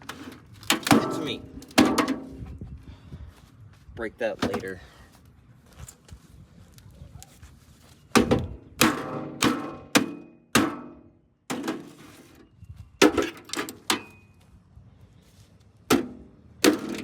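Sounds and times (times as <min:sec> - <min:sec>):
sharp metal knocks ringing: 0:08.2 - 0:11.8.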